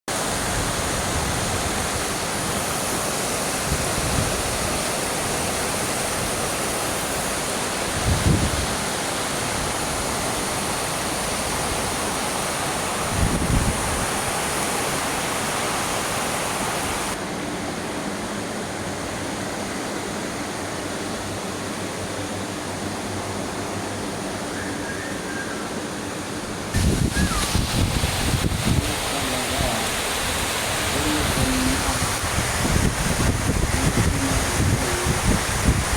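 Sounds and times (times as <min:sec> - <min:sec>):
heavy rain hissing: 0:00.1 - 0:17.2, 0:26.7 - 0:35.9.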